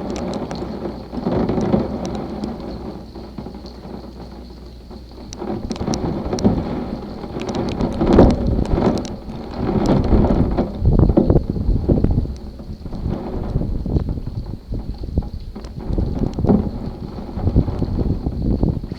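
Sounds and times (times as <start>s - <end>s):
rain falling: 0.0s - 18.9s
raindrop ticks: 0.0s - 18.9s
thunder rolling: 5.3s - 18.9s.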